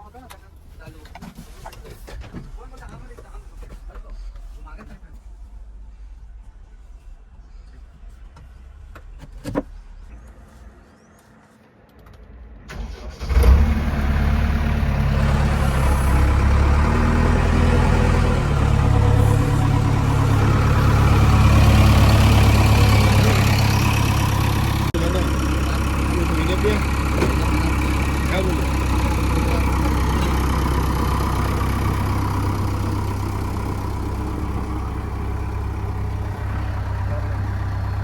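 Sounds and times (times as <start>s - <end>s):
heavy diesel engine running: 12.7s - 38.0s.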